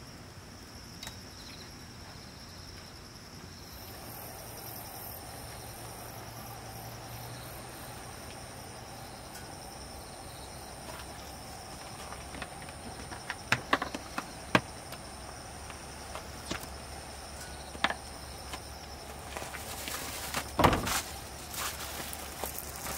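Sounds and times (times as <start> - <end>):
crickets chirping: 0.0 - 22.9
low background noise: 0.0 - 22.9
sharp clicks and knocks: 12.3 - 15.0.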